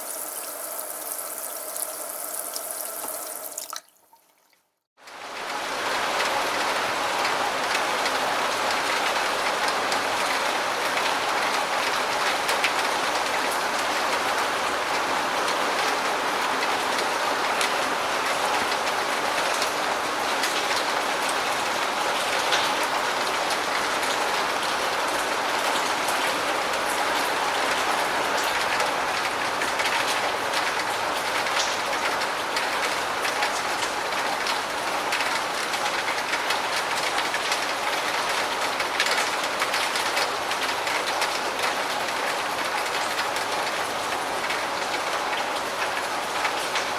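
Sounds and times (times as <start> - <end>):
heavy rain: 0.0 - 3.5, 5.0 - 46.9
raindrops ticking: 0.0 - 4.6.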